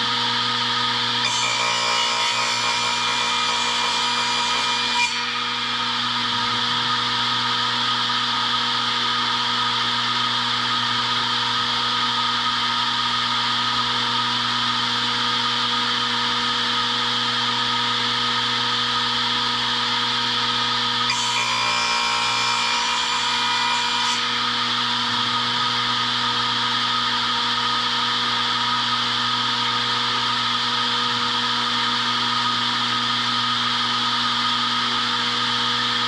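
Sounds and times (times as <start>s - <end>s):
power tool cutting wood: 0.0s - 9.7s, 19.5s - 36.0s.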